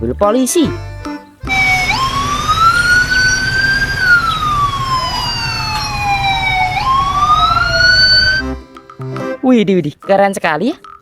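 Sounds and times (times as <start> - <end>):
police siren wailing: 1.5 - 8.5.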